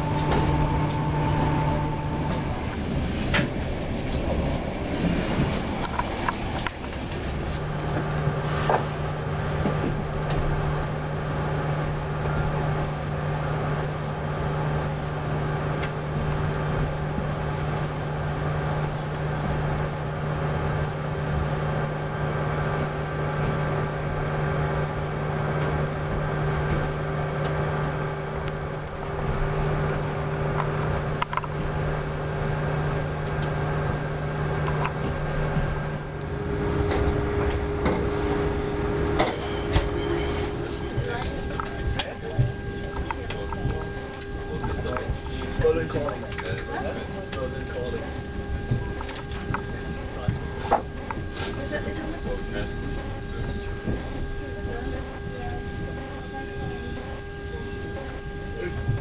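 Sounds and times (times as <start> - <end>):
train carriage hum: 0.0 - 59.0.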